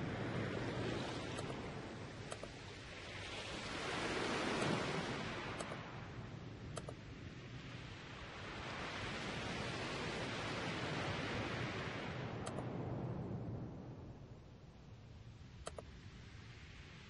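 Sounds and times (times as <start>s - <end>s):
faint mouse clicks: 1.4s - 1.6s, 2.3s - 2.6s, 5.6s - 5.8s, 6.7s - 7.0s, 12.4s - 12.7s, 15.6s - 15.9s.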